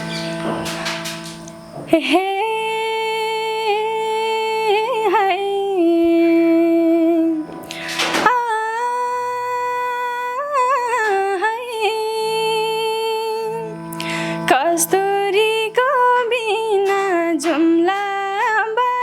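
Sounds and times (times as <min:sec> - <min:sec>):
woman singing: 0:01.8 - 0:19.0
sharp intake of breath: 0:14.0 - 0:14.5.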